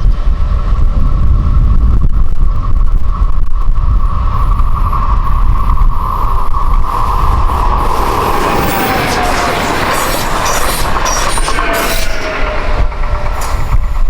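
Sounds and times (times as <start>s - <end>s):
wind rumble on microphone: 0.0s - 14.0s
train passing: 3.7s - 14.0s.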